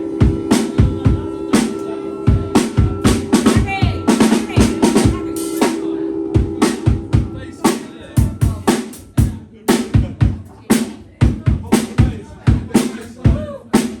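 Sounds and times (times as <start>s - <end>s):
held bass note: 0.0s - 9.5s
drum kit playing: 0.0s - 14.0s.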